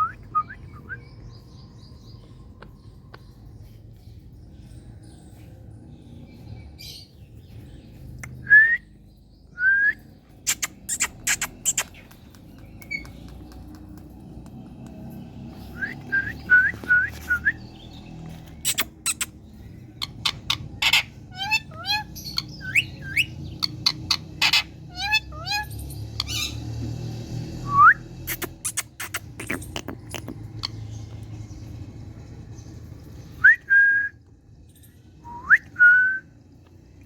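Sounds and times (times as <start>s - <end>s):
parakeet harsh squawks: 20.3s - 23.2s, 23.8s - 26.6s.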